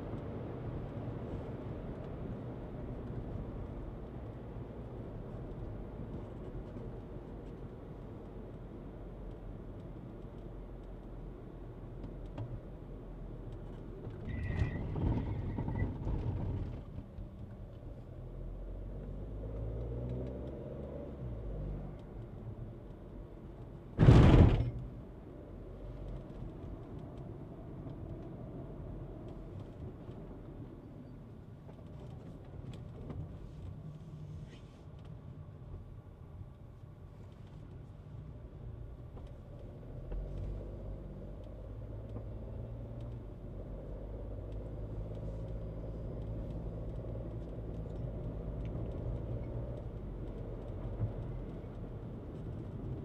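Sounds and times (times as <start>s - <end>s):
car engine and road rumble: 0.0s - 53.0s
loud short thump: 24.0s - 24.8s.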